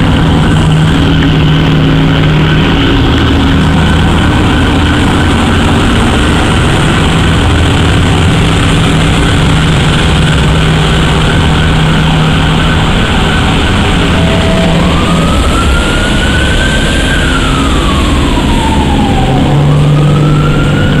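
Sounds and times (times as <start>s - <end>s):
car engine running low: 0.0s - 21.0s
high gliding tone: 0.0s - 21.0s.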